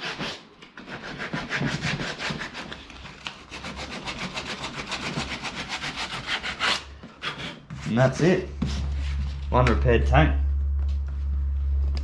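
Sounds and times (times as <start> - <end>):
sandpaper scratching plastic: 0.0 - 8.9.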